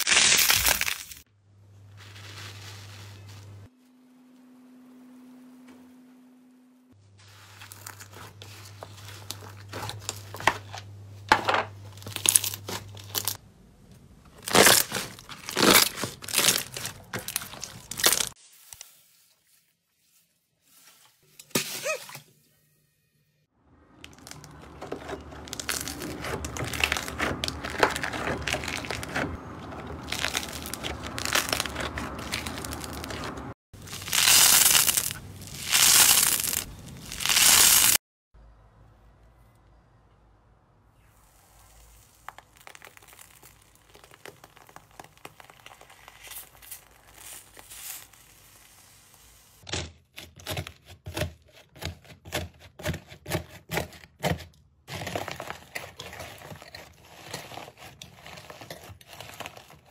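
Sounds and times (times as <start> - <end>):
slime squelching and popping: 41.7 - 48.1.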